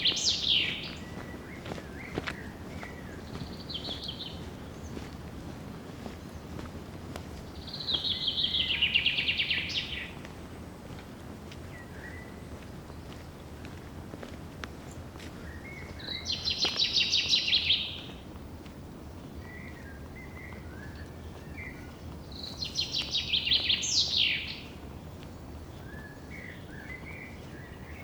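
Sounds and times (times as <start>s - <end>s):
songbird trilling: 0.0s - 4.9s, 7.5s - 10.2s, 15.6s - 18.2s, 19.2s - 24.8s
soft bird chirps: 0.0s - 5.2s, 15.4s - 18.2s, 19.1s - 28.0s.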